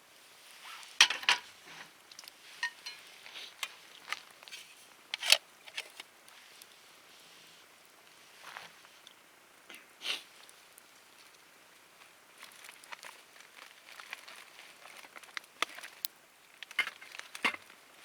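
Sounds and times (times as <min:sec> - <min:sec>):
wood fire crackling: 0:00.2 - 0:18.0.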